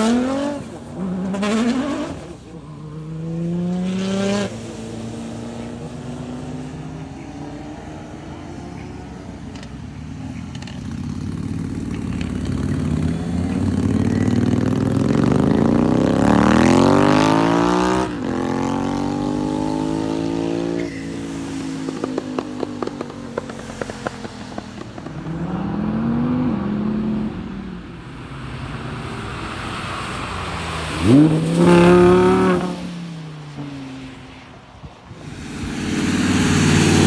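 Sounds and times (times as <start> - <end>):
car engine accelerating: 0.0 - 37.0
exhaust crackling and popping: 7.4 - 33.8, 34.8 - 37.0.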